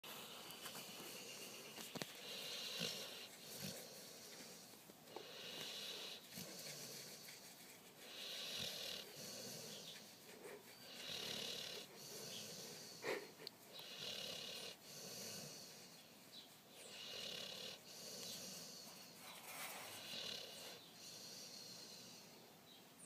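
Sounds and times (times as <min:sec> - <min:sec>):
dog snoring: 0:02.2 - 0:07.2, 0:08.1 - 0:10.0, 0:10.9 - 0:13.2, 0:13.8 - 0:15.9, 0:16.8 - 0:19.2, 0:19.9 - 0:22.3.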